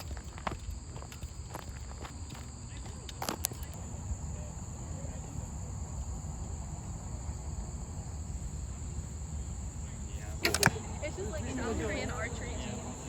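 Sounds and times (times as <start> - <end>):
insects chirping: 0.0 - 13.0
sharp clicks: 10.4 - 10.8.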